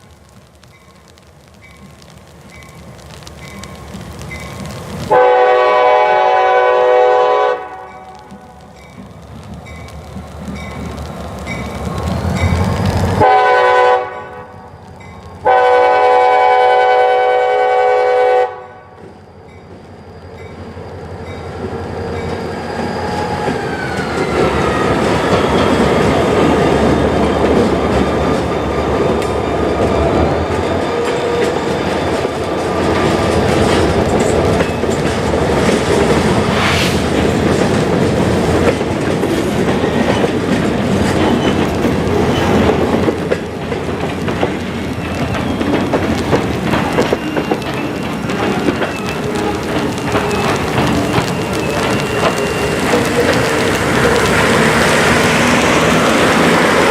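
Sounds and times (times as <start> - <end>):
train rumble: 0.0 - 56.9
locomotive air horn: 5.1 - 8.2, 13.2 - 14.5, 15.4 - 19.0
wheels clicking over rail joints: 7.7 - 13.4, 19.0 - 36.3, 37.2 - 56.9.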